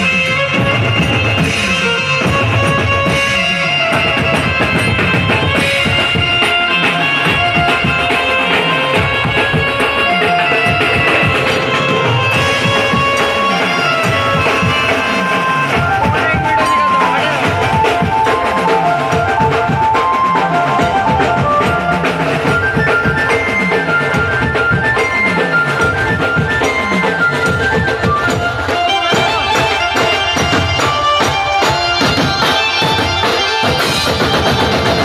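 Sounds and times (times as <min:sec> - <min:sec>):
dense drumming: 0:00.6 - 0:23.2
melody: 0:02.1 - 0:34.3.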